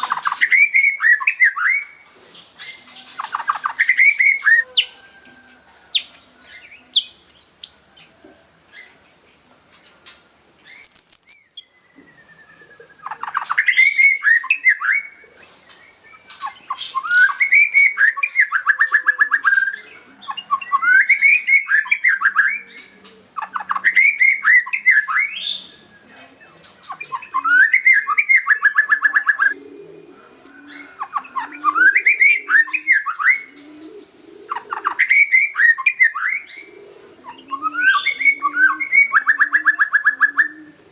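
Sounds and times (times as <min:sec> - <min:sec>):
bird singing whistled phrases: 0:00.0 - 0:02.0, 0:10.6 - 0:15.2, 0:16.1 - 0:25.8, 0:34.5 - 0:40.6.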